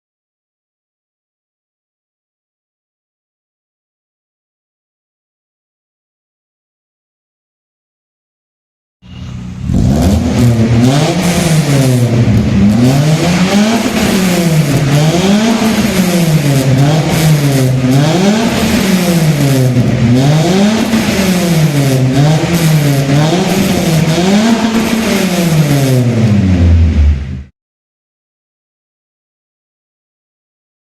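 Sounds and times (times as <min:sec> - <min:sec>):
car engine revving: 0:09.0 - 0:27.5.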